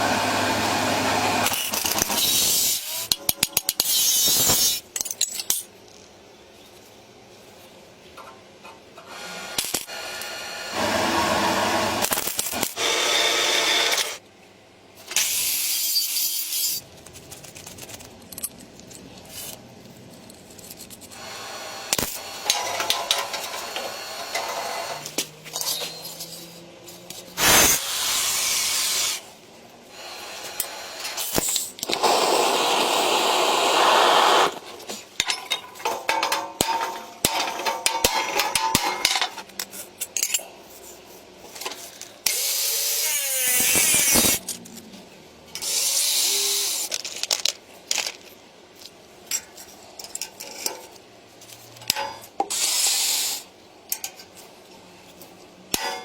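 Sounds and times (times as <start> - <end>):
metal parts clinking: 46.8 - 48.3.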